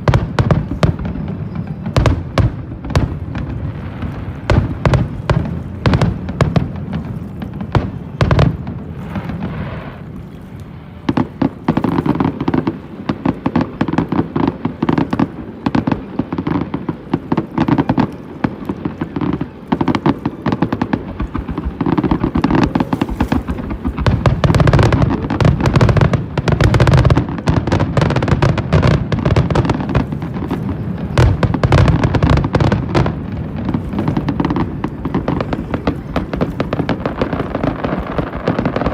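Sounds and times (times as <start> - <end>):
fireworks bursting: 0.0 - 38.9.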